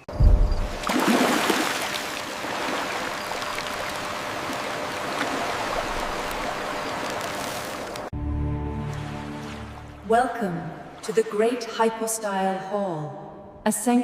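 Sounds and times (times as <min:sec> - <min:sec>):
water splashing: 0:00.4 - 0:08.1, 0:08.7 - 0:11.4
steady rushing water: 0:00.8 - 0:08.1.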